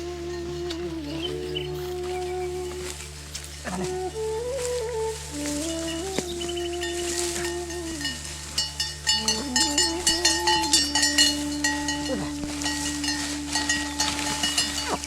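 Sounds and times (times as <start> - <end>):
animal call: 0.0 - 15.0
held note of background music: 0.0 - 15.0
goat bells clinking: 5.5 - 15.0.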